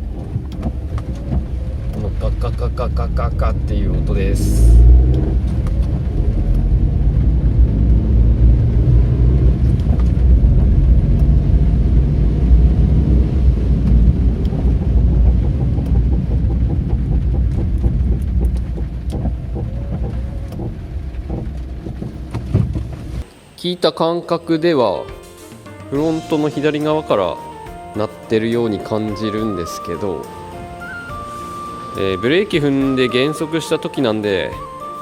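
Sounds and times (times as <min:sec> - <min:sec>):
low rumbling grinding while braking: 0:00.0 - 0:23.3.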